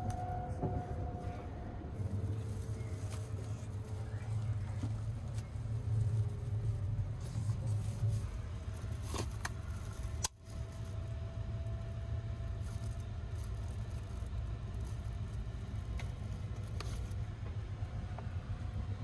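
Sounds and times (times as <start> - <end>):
train rumbling from inside: 0.0 - 19.0.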